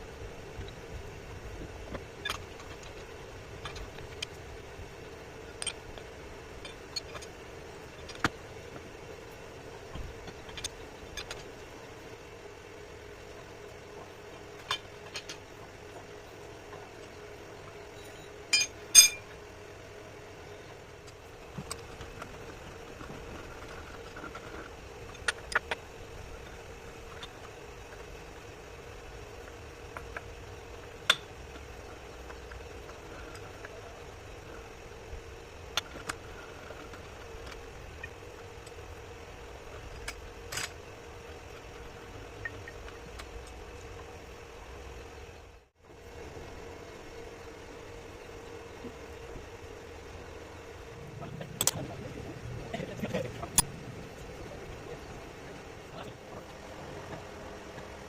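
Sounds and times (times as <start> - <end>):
machine hum: 0.0 - 58.0
metal tools clinking: 18.0 - 19.3
ringing double clink: 18.1 - 19.3.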